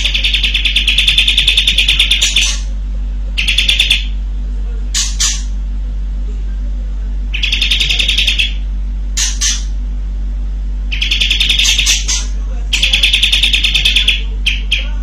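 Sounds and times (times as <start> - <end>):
bulbul singing in rattling volleys: 0.0 - 2.7, 3.4 - 4.2, 7.3 - 9.8, 10.9 - 15.0
low electrical hum: 0.0 - 15.0.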